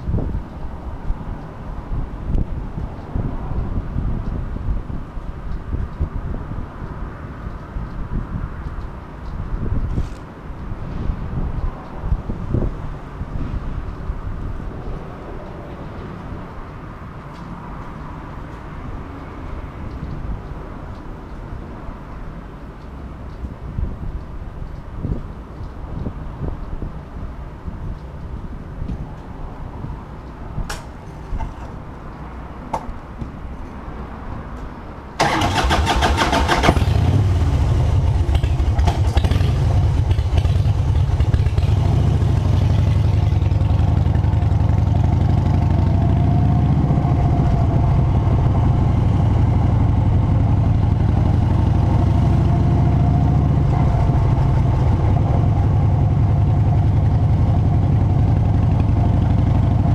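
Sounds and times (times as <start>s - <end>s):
motorcycle engine starting and idling: 35.2s - 52.0s.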